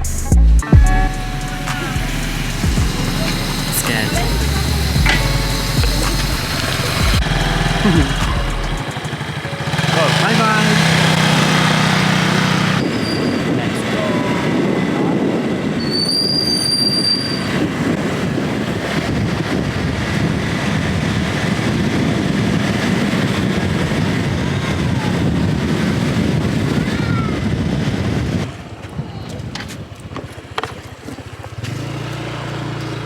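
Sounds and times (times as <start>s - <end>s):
high-pitched squeal: 0.0s - 18.3s
vehicle rumble and road noise: 0.0s - 33.0s.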